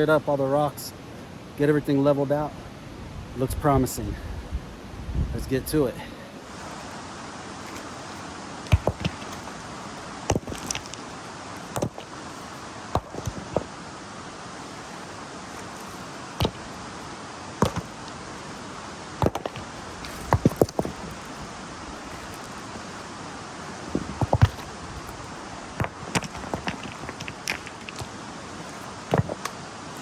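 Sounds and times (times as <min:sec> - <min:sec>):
river rushing: 0:04.7 - 0:30.0
rocks clacking and knocking: 0:07.6 - 0:13.8, 0:14.6 - 0:30.0.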